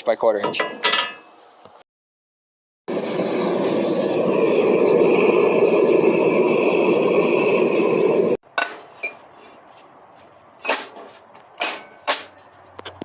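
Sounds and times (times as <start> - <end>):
steel bars clinking together: 0.4 - 1.3, 10.6 - 12.4
forging equipment running: 2.9 - 8.4.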